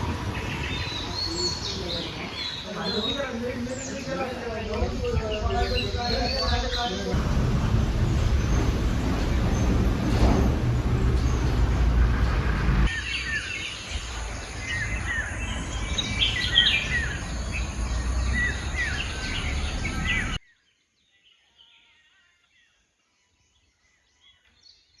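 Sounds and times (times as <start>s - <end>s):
birds chirping: 0.0s - 20.4s
low outdoor rumble: 3.7s - 20.4s
loud rushing noise: 7.1s - 20.4s.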